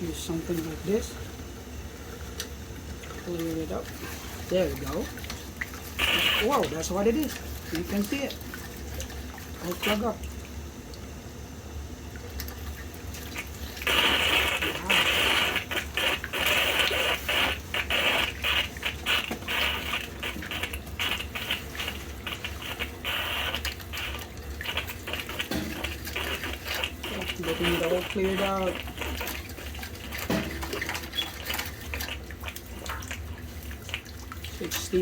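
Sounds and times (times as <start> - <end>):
steady low hum: 0.0 - 35.0
steam sputtering rattle: 13.8 - 31.3.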